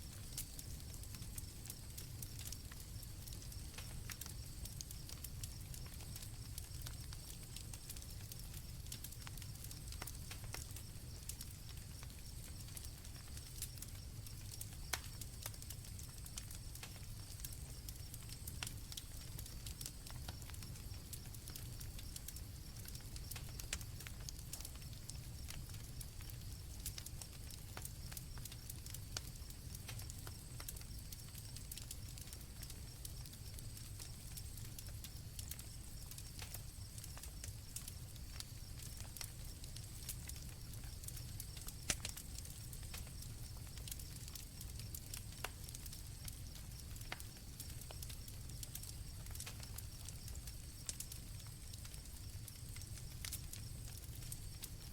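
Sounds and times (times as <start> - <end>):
campfire crackling and popping: 0.0 - 54.9
crickets chirping: 24.8 - 54.8.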